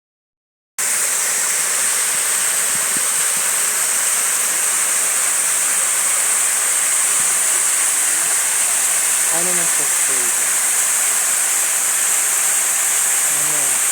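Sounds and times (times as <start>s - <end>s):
waterfall rushing: 0.8s - 13.9s.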